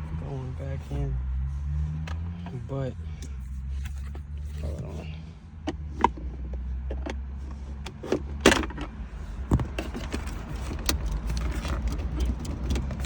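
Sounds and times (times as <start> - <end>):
plastic cup holder clicks and rattles: 7.8 - 13.0.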